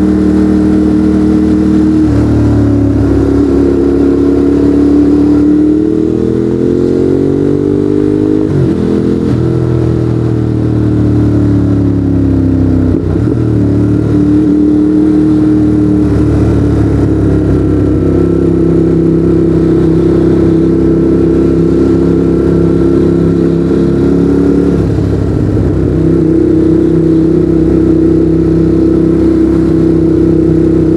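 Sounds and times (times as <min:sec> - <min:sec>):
motorcycle engine riding: 0:00.0 - 0:30.9.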